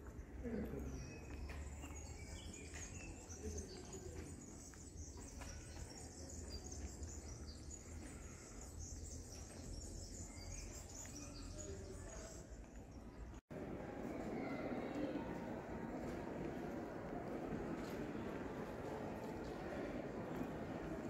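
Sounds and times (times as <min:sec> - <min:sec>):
small birds chirping: 0:00.0 - 0:13.4.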